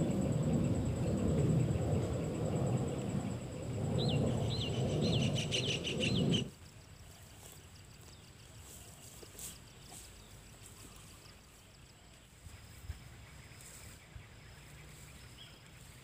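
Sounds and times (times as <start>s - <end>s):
heavy low rumbling: 0.0s - 6.5s
bird calling: 4.0s - 6.5s.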